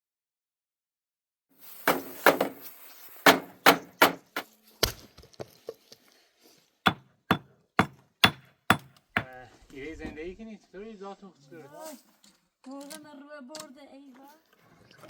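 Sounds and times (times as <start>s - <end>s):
sharp strikes on wood: 1.9s - 2.6s, 3.2s - 4.4s, 6.9s - 9.4s.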